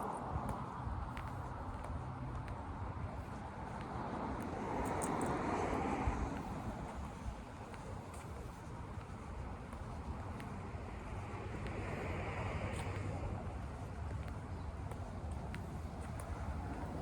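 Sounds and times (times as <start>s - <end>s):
car passing: 0.0s - 17.0s
street low rumble: 0.0s - 17.0s.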